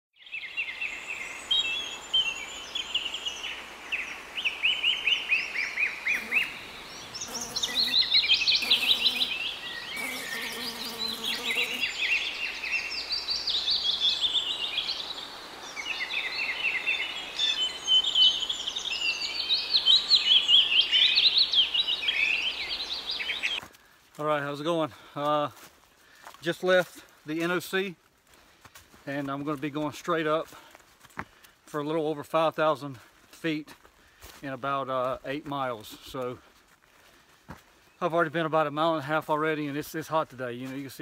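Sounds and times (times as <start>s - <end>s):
songbirds trilling: 0.2s - 23.6s.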